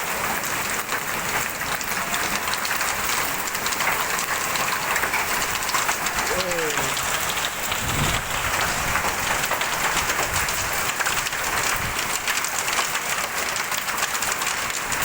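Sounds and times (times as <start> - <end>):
rain and hail falling: 0.0 - 15.0.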